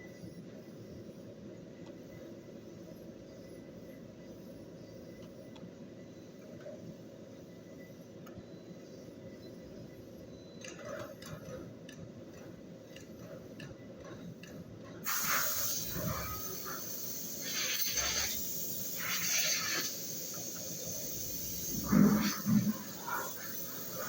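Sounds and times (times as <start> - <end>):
hissing bursts: 15.1 - 24.0.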